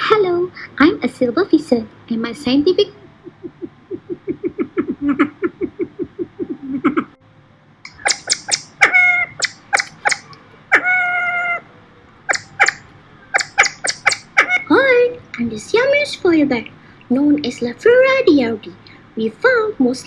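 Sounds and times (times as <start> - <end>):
bird low evenly spaced notes: 2.1 - 15.4
bird sharp high chirps: 7.9 - 10.9, 12.3 - 14.6.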